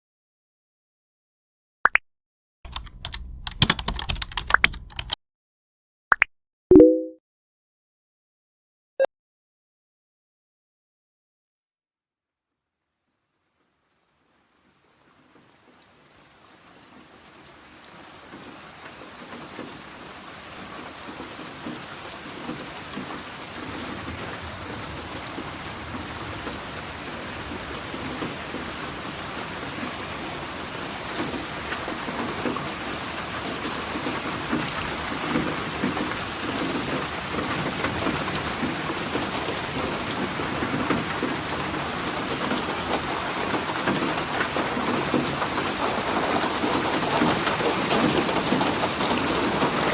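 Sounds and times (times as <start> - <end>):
low rumbling: 2.7 - 5.0
rain falling: 2.7 - 5.1, 13.8 - 49.9.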